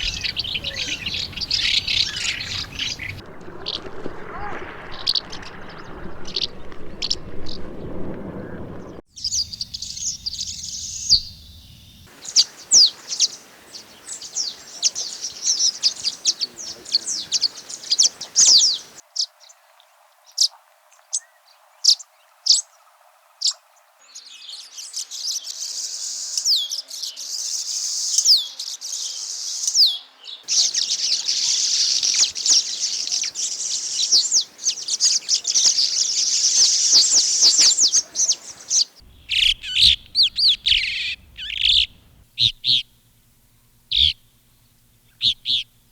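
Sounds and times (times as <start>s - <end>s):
swallows twittering: 0.0s - 3.8s, 9.2s - 19.0s, 24.8s - 42.8s, 43.9s - 44.2s, 45.1s - 45.6s.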